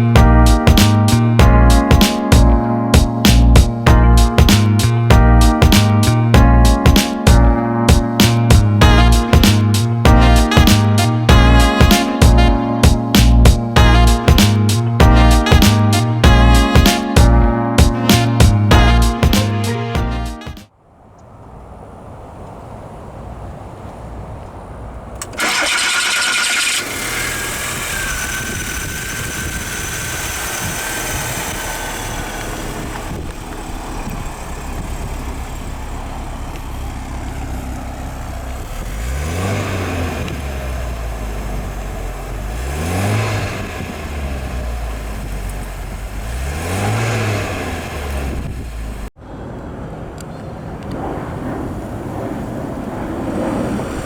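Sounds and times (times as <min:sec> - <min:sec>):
car engine starting and revving: 0:21.4 - 0:49.2, 0:51.8 - 0:54.0.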